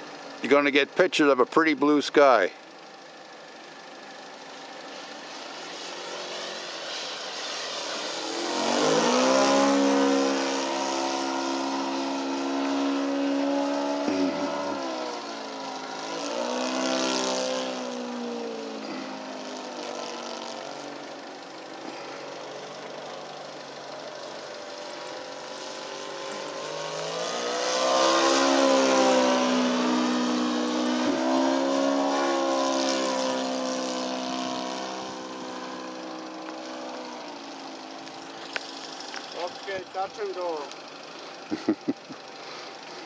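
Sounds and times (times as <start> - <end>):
model airplane engine flying past: 5.3 - 20.9, 25.5 - 36.0.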